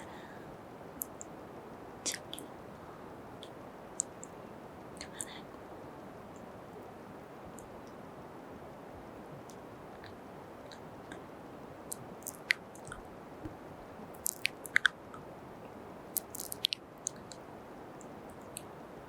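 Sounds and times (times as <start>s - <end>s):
microphone hiss: 0.0s - 19.0s
wet lip smacks and kisses: 16.2s - 17.2s.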